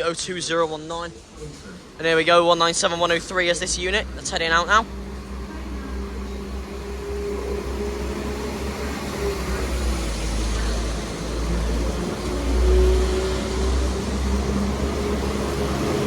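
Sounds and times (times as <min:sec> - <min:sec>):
diesel train engine drone: 0:00.0 - 0:16.0.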